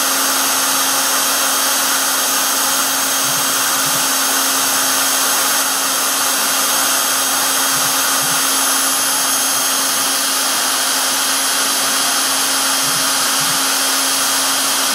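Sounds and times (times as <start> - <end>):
spindle motor whine: 0.0 - 14.9.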